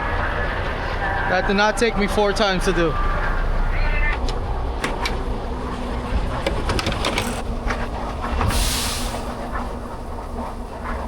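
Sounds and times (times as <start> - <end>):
low vehicle rumble: 0.0 - 11.0
burst of hiss: 8.5 - 9.3.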